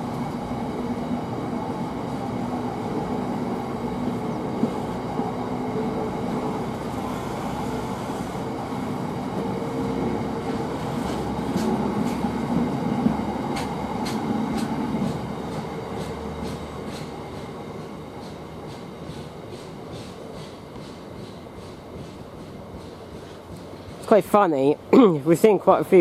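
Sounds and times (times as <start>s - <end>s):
freight train rumbling past: 0.0s - 26.0s
wheels clicking over rail joints: 10.4s - 24.8s.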